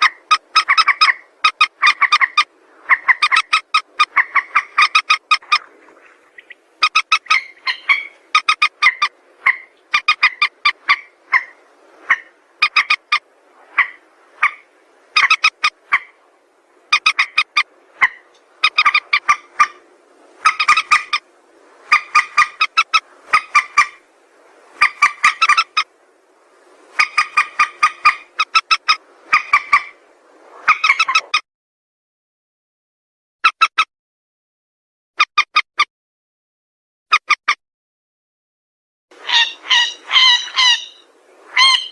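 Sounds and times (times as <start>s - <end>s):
rail bird rasping calls: 0.0s - 16.2s, 16.9s - 21.3s, 21.9s - 24.0s, 24.7s - 25.9s, 26.9s - 30.0s, 30.6s - 31.4s, 39.2s - 41.9s.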